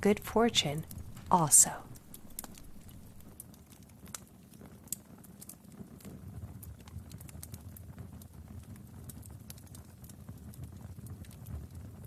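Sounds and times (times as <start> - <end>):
low steady rumble: 0.0 - 3.4
wood fire crackling: 0.0 - 12.0.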